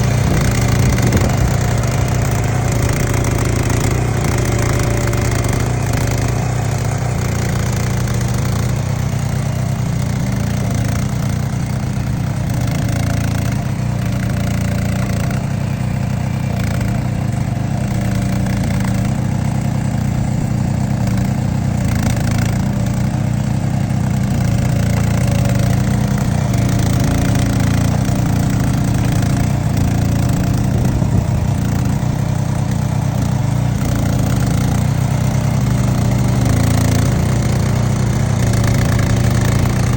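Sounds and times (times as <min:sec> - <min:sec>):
trenching machine engine running: 0:00.0 - 0:39.9.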